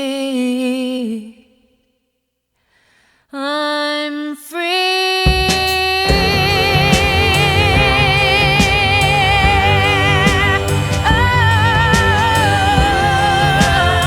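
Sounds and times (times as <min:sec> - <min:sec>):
instrumental accompaniment with beat: 0:05.3 - 0:14.0
person singing long notes: 0:06.1 - 0:14.0.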